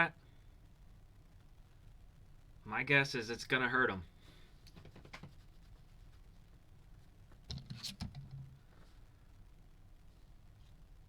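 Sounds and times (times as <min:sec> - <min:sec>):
faint clicks and taps: 0:04.6 - 0:05.5.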